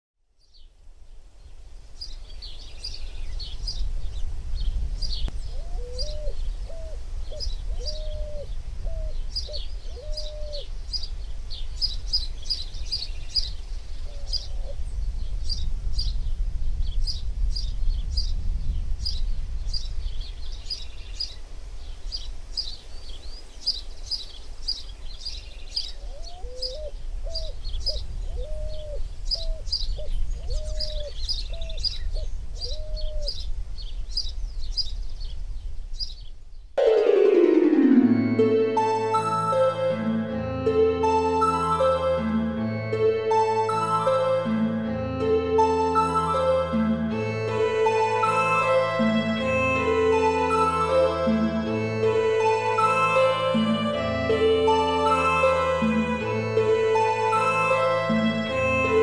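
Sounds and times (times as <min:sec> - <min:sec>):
birds chirping: 0:01.9 - 0:14.8, 0:19.1 - 0:36.7
lower bird call: 0:05.2 - 0:11.0.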